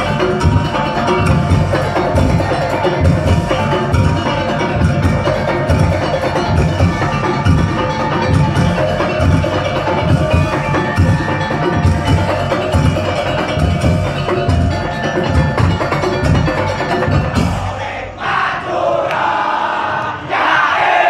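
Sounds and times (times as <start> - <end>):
clattering wooden percussion: 0.0 - 17.7
heavy drum beat: 0.0 - 17.8
ringing tuned metal percussion: 0.0 - 17.9.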